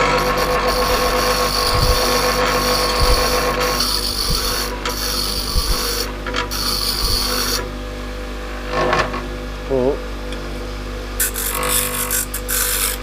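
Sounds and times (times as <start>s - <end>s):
rasping grind of wheel: 0.0s - 7.6s, 11.2s - 13.0s
bench grinder motor hum: 0.0s - 7.7s, 11.2s - 13.0s.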